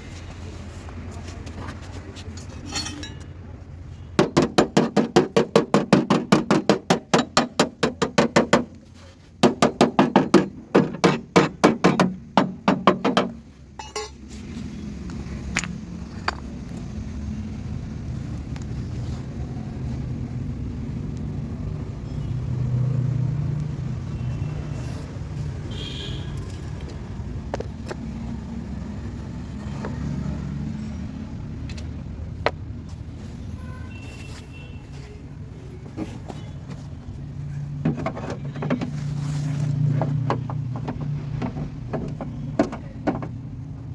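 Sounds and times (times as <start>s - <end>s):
rapid hammering on metal: 4.2s - 8.8s, 9.4s - 13.4s.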